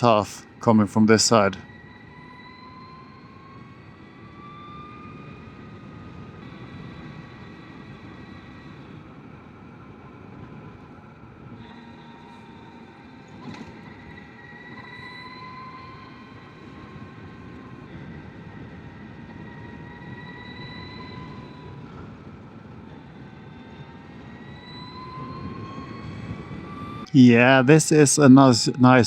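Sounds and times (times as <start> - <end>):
wind: 0.0 - 29.0.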